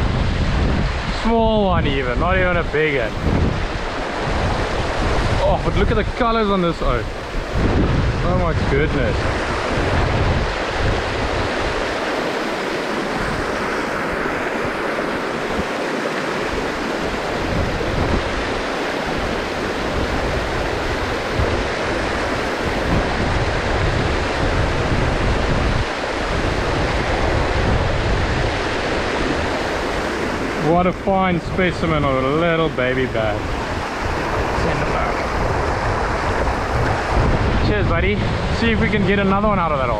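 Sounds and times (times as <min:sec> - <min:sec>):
stream water rushing: 0:00.0 - 0:39.9
wind buffeting microphone: 0:00.0 - 0:39.9.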